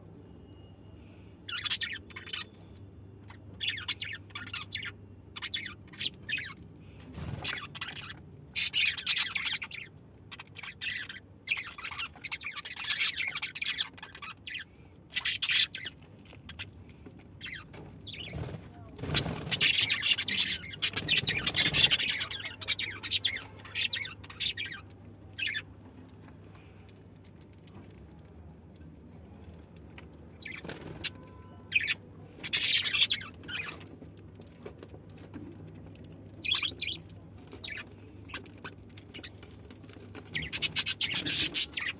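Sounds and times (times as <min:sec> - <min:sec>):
budgerigars chirping: 0:17.4 - 0:24.8, 0:31.7 - 0:33.8, 0:36.4 - 0:37.0, 0:40.3 - 0:41.9.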